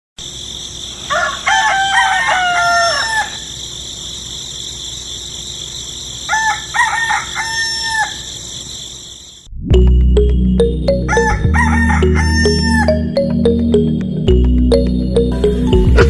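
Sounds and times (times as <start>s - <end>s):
rooster crowing: 1.0s - 3.7s, 6.2s - 8.6s, 11.1s - 13.1s.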